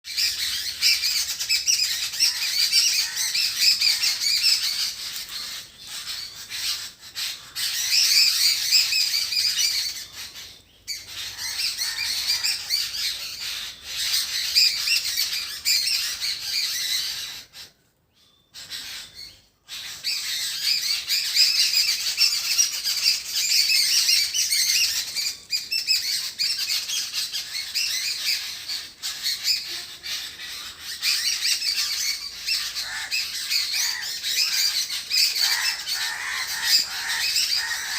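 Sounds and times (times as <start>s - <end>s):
birds chirping: 0.1s - 37.9s.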